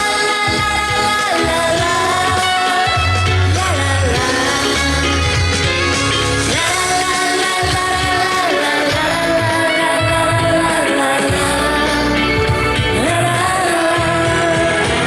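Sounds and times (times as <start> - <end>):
person singing: 0.0 - 15.0
pop-rock band playing: 0.0 - 15.0
steady bass beat: 0.0 - 15.0.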